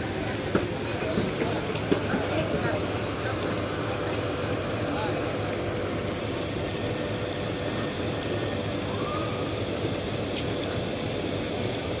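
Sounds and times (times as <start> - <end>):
train coaches rumbling on rails: 0.0 - 6.0.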